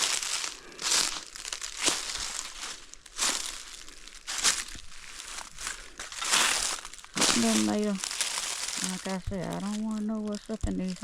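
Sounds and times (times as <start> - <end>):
footsteps crunching through dry leaves: 0.0 - 11.0.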